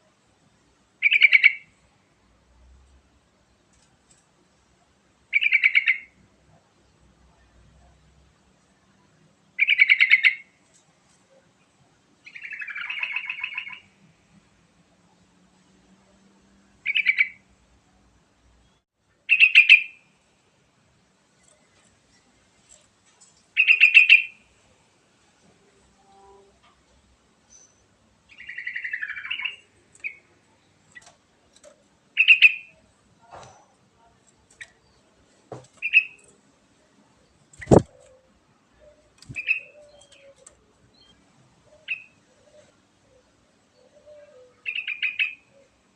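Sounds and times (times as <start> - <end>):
bird singing bubbly phrases: 37.6 - 37.9.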